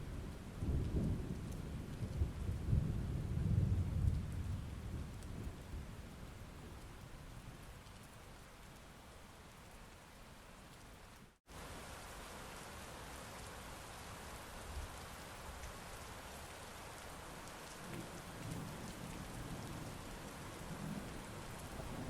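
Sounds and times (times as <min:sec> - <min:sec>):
thunder rumbling: 0:00.6 - 0:05.9, 0:17.8 - 0:22.0
heavy rain falling: 0:11.5 - 0:22.0.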